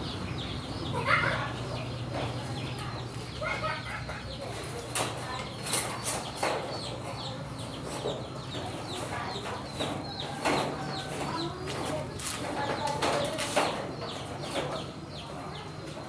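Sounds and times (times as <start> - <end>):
chickens clucking: 0.1 - 16.0.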